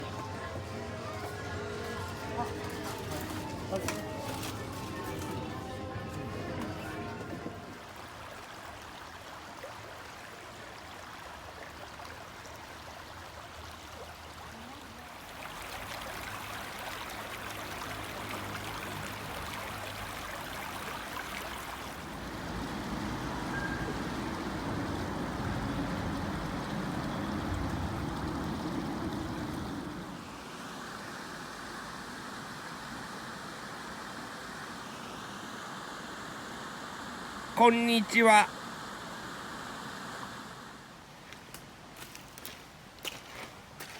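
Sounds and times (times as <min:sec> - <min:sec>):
stream trickling over stones: 0:00.0 - 0:32.3, 0:41.1 - 0:43.9.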